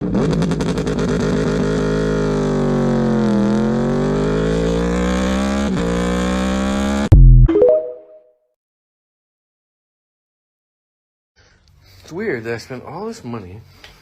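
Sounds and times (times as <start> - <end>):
motorcycle engine at high revs: 0.0 - 7.1.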